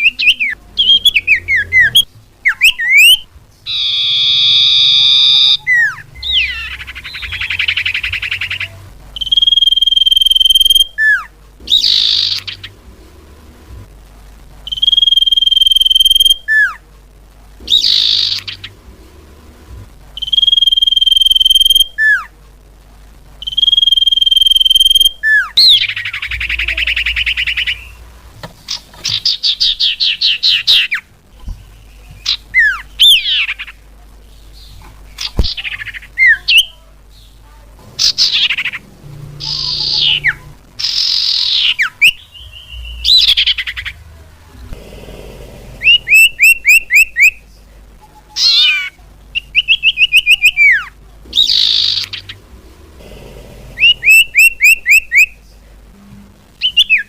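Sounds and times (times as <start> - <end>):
bird calls and song: 0.0 - 12.7, 17.7 - 18.8.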